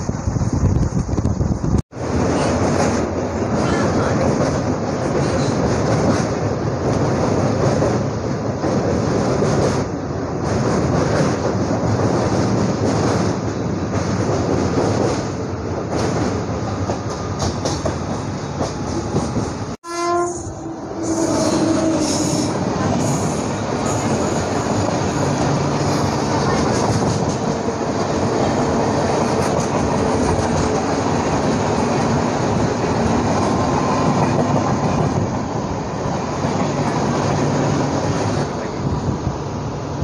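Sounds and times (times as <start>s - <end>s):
train wheels rumbling on bridge: 0.0s - 40.0s
train horn: 19.8s - 22.6s.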